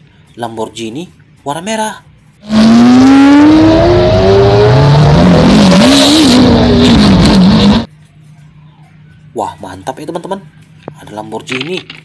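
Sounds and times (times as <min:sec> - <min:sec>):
car engine accelerating hard: 0:02.4 - 0:07.9.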